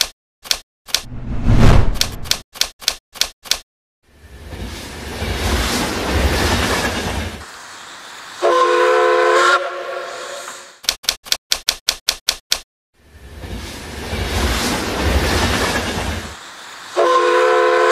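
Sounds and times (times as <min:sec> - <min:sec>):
train chord horn blast: 0:08.4 - 0:10.6, 0:17.0 - 0:17.9
typewriter key clicks: 0:10.8 - 0:12.6
train rushing past: 0:13.0 - 0:17.9.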